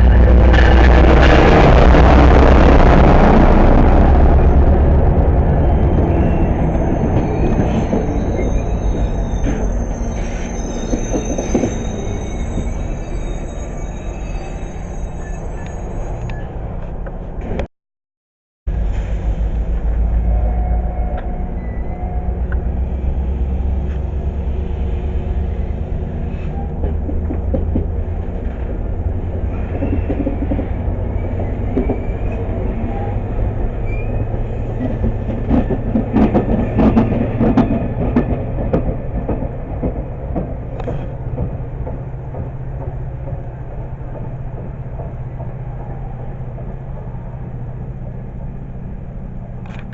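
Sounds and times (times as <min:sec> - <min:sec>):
train rumbling past: 0:00.0 - 0:17.7, 0:18.7 - 0:49.9
train wheel clicks and knocks: 0:26.8 - 0:28.8, 0:34.8 - 0:45.7.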